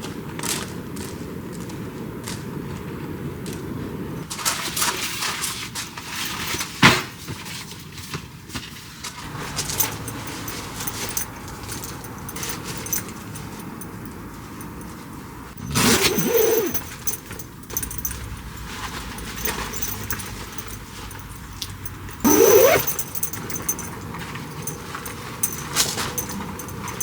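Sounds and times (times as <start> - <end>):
handling clicks and rustles: 9.3 - 27.0
scraping squeak: 21.9 - 23.9.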